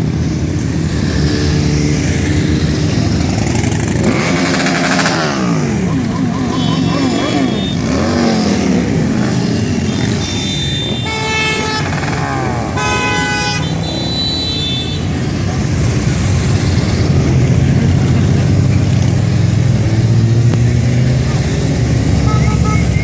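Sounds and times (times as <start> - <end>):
motorcycle engines droning: 0.0 - 23.0
vehicle horn honking: 5.9 - 8.8, 9.4 - 11.9, 12.7 - 15.1, 22.2 - 23.0.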